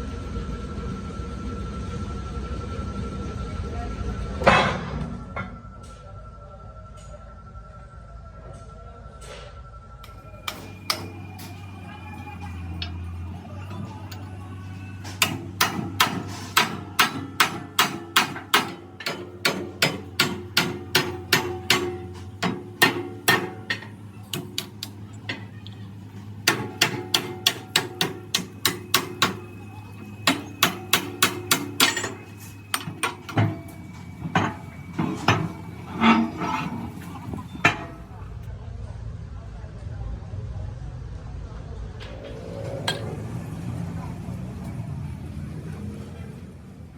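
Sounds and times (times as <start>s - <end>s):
steady low hum: 0.0s - 45.2s
hammer striking steel: 10.0s - 38.2s, 42.9s - 43.2s.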